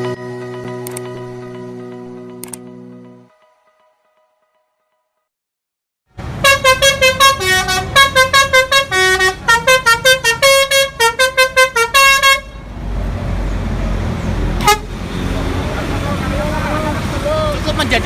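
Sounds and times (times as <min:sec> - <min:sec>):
multi-tone musical horn: 0:06.4 - 0:12.7, 0:14.6 - 0:15.0.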